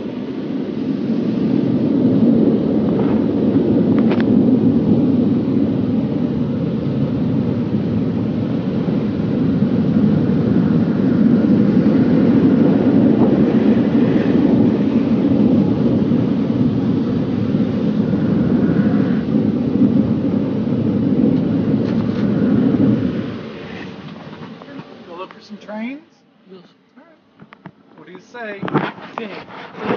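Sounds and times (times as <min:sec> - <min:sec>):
car wash equipment rushing: 0:00.0 - 0:26.0.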